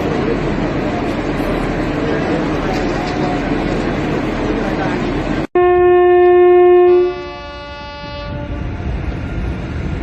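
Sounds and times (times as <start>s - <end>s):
second horn tone: 5.6s - 8.7s
train horn blast: 5.6s - 8.8s.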